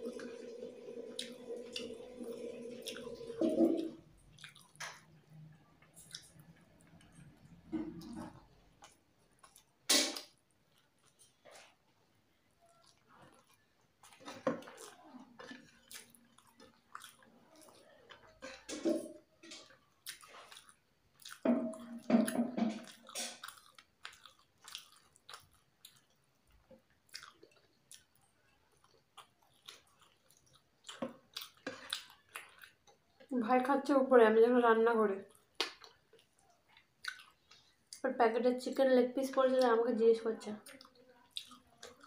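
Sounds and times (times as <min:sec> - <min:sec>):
close-up chewing: 0:04.0 - 0:18.7, 0:19.3 - 0:33.3, 0:35.2 - 0:38.0, 0:40.6 - 0:42.0
wet mouth clicks and smacks: 0:04.3 - 0:05.1, 0:35.5 - 0:38.0.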